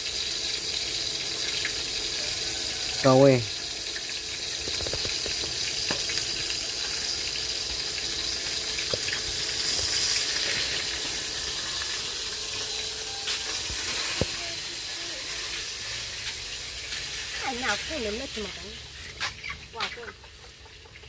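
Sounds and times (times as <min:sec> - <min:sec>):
fish sizzling in hot oil: 0:00.0 - 0:21.0
oil popping: 0:03.8 - 0:20.0.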